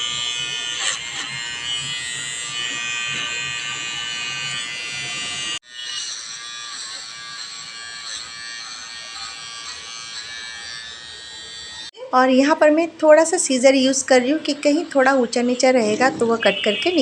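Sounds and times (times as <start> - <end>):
electric hair trimmer buzzing: 0.0 - 12.0.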